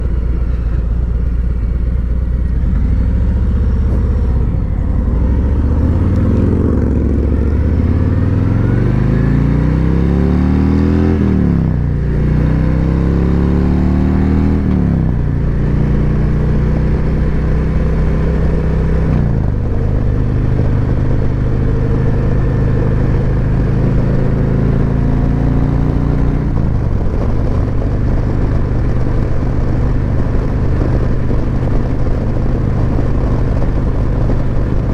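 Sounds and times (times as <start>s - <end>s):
motorcycle accelerating and shifting: 0.0s - 34.9s.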